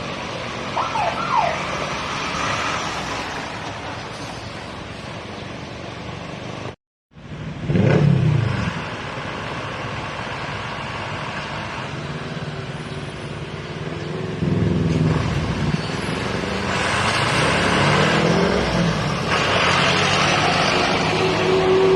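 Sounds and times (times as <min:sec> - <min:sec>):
truck engines: 0:00.0 - 0:21.9
vehicle passing loudly: 0:07.5 - 0:21.9.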